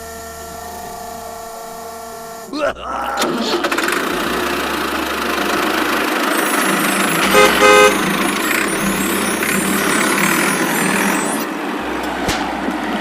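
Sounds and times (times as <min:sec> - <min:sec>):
vehicle engine running: 0:03.2 - 0:13.0
horn toots: 0:07.2 - 0:08.7.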